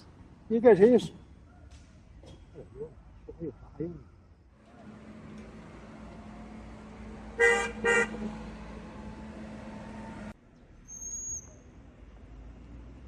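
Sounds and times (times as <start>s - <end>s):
street hum: 0.0s - 13.0s
vehicle horn beeps: 7.3s - 8.4s.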